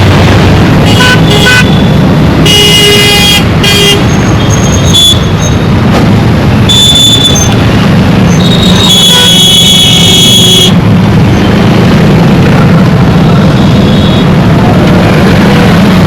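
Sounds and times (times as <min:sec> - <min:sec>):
traffic engine rumble: 0:00.0 - 0:16.0
high-pitched vehicle horn: 0:00.9 - 0:04.1.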